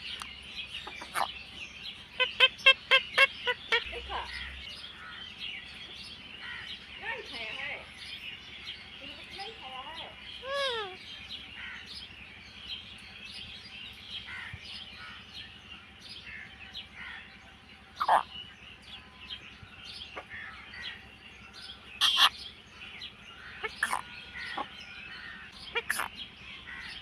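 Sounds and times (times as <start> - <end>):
parakeet chirping and screeching: 0.8 - 1.4, 2.2 - 5.1, 10.4 - 11.0, 18.0 - 18.3, 22.0 - 22.4, 23.4 - 26.9.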